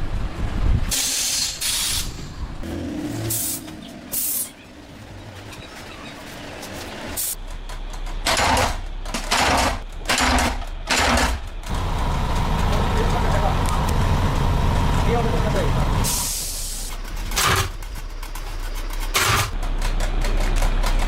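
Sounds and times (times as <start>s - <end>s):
short hisses of air: 0.9s - 2.3s, 16.1s - 16.9s
factory machinery noise: 0.9s - 21.0s.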